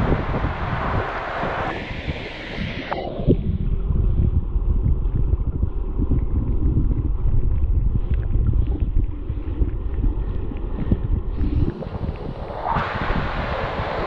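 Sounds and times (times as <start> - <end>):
waterfall rushing: 0.0 - 3.0, 11.8 - 14.0
wind buffeting microphone: 0.0 - 14.0.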